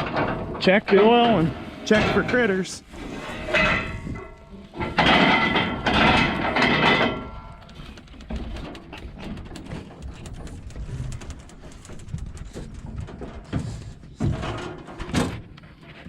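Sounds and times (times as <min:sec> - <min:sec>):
clicks and knocks on metal: 0:00.0 - 0:02.4, 0:03.2 - 0:15.6
metal door scraping open: 0:00.0 - 0:07.2.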